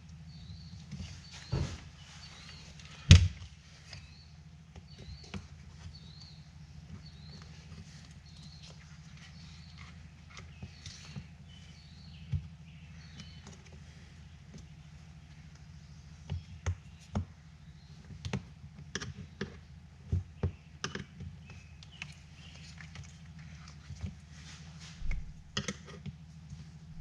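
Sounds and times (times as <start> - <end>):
low hum: 24.5 - 25.6.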